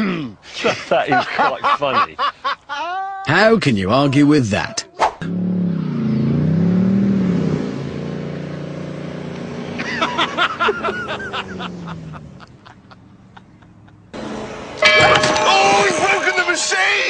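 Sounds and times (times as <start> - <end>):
car engine revving: 5.2 - 13.4.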